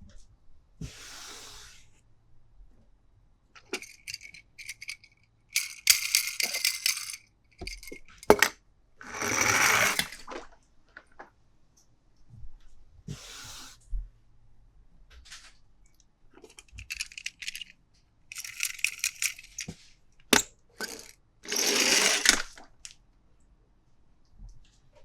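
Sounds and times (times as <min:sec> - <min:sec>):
small hard pieces rattling: 0:03.8 - 0:08.5, 0:16.5 - 0:19.7, 0:20.8 - 0:22.5.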